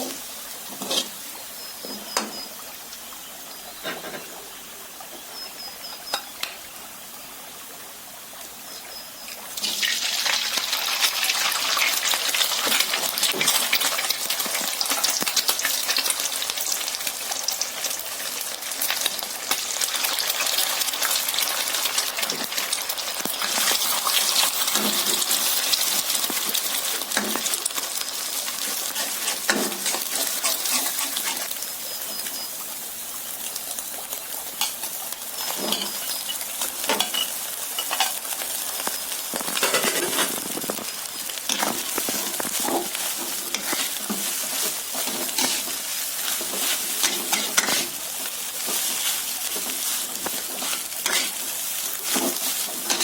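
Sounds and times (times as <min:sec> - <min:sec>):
food sizzling in a pan: 0:00.0 - 0:53.0
spatula strokes: 0:41.5 - 0:53.0.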